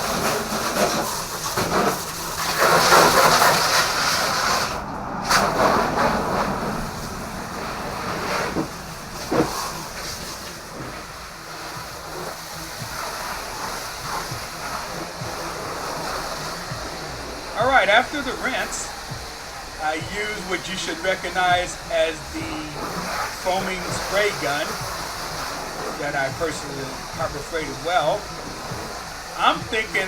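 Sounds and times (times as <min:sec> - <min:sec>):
water spraying from hose: 0:00.0 - 0:30.0.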